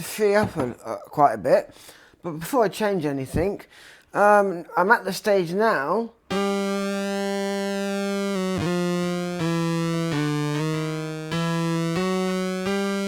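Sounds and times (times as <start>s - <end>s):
guitar synthesizer tone: 6.3s - 13.0s.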